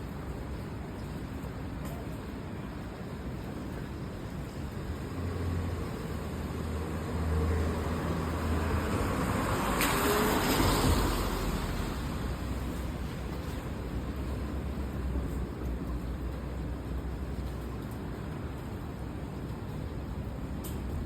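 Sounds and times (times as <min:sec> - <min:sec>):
tyres hissing on wet road: 0:03.5 - 0:15.8.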